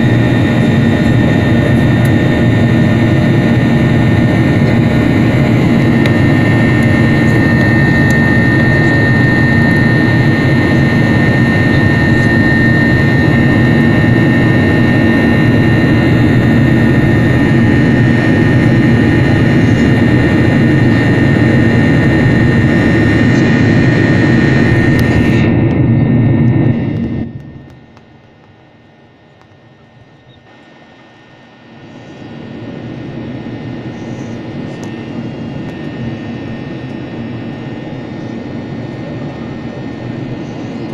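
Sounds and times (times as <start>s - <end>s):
constant high whine: 0.0s - 40.9s
jet engines and airflow drone: 0.0s - 40.9s.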